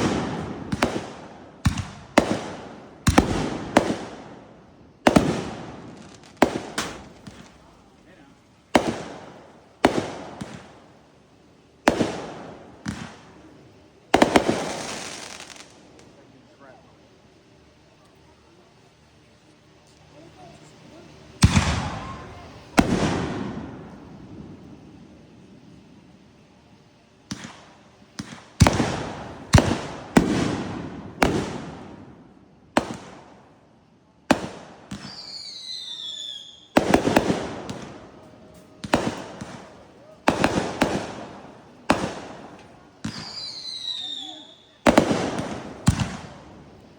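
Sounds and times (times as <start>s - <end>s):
fireworks bangs echoing: 0.0s - 11.1s, 11.8s - 16.2s, 21.3s - 25.9s, 27.2s - 33.6s, 34.3s - 46.9s.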